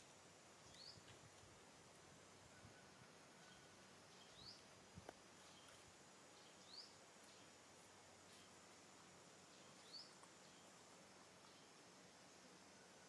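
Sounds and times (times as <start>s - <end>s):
faint bird chirps: 0.6s - 1.1s, 2.4s - 7.6s, 9.5s - 11.8s.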